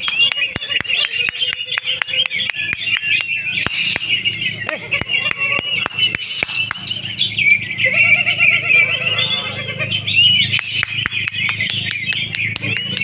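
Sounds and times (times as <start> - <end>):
birds singing high chirps: 0.0 - 13.0
steady low hum: 0.0 - 13.0.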